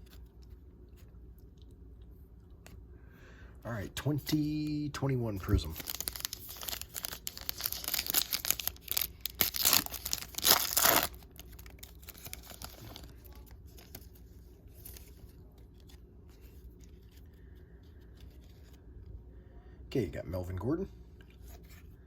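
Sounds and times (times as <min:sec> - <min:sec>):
faint rustling of cards: 0:04.0 - 0:19.4, 0:21.2 - 0:22.0
wrapper tearing and crinkling: 0:05.6 - 0:14.0.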